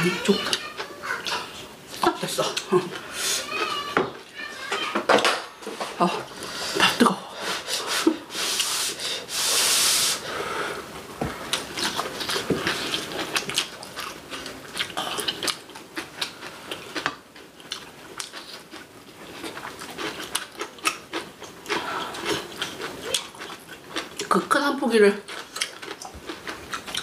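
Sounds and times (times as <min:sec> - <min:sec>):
mouths chewing food: 0:11.3 - 0:24.5, 0:25.2 - 0:27.0.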